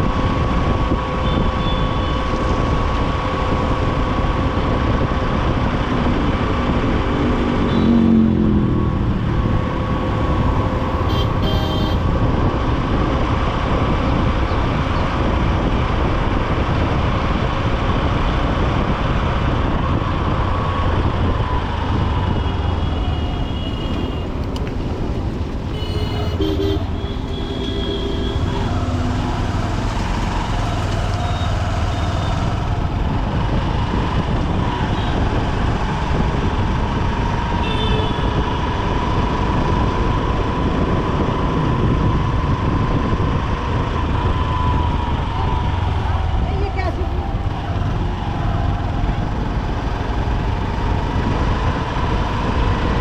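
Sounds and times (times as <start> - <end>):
surrounding traffic noise: 0.0 - 53.0
vehicle horn toots: 7.7 - 8.1, 10.8 - 12.2, 25.7 - 28.8.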